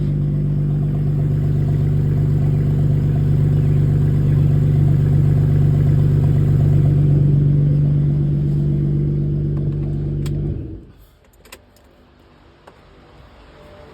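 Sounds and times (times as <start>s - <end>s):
car engine running without exhaust: 0.0s - 10.9s.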